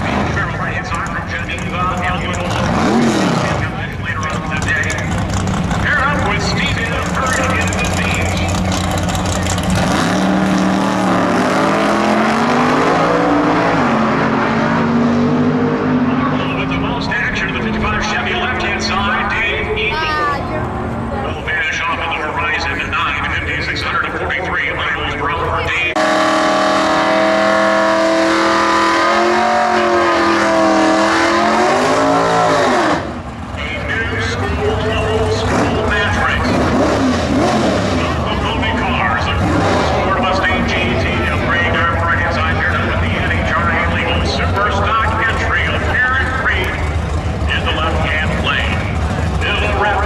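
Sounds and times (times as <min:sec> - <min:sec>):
racing car engine accelerating: 0:00.0 - 0:50.0.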